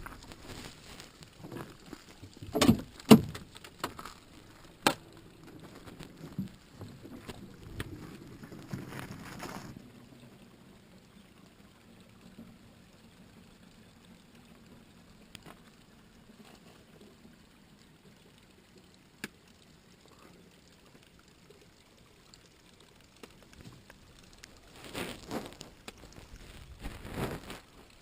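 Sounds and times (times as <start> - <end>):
spring water trickling: 0.0 - 28.0.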